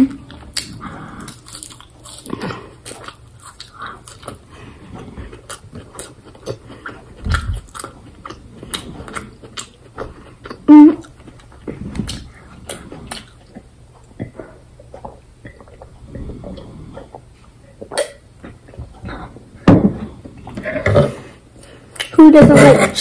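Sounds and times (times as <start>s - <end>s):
close-up chewing and crunching: 0.0s - 19.4s.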